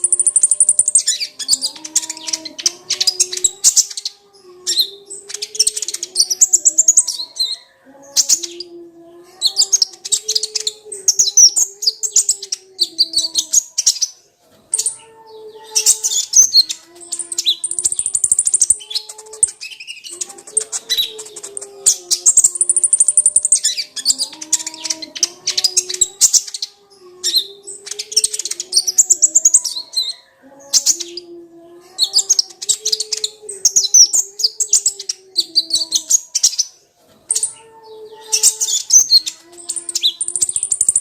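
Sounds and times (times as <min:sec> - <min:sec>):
bird twittering chirps: 0:00.0 - 0:08.7, 0:09.5 - 0:31.3, 0:37.3 - 0:41.0.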